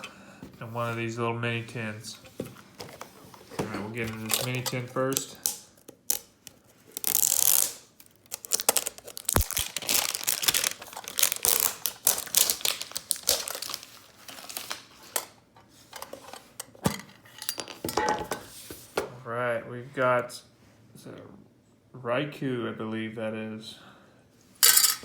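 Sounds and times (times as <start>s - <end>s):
plastic wrapping crinkling and tearing: 4.0s - 15.2s.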